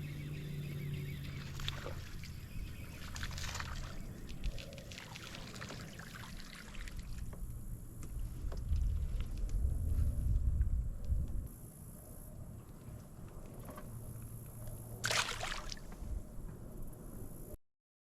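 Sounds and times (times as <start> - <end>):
water splashing against a kayak: 1.3 - 9.6, 14.9 - 16.1
water drips and clicks: 3.0 - 7.5
low rumble: 7.0 - 11.5.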